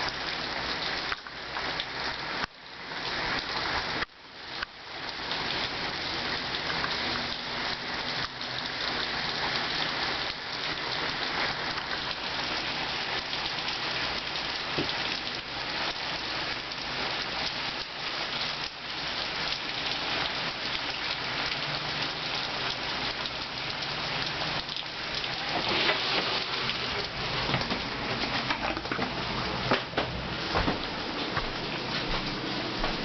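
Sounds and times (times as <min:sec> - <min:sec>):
rain hissing: 0:00.0 - 0:33.0
raindrop impacts: 0:24.2 - 0:33.0.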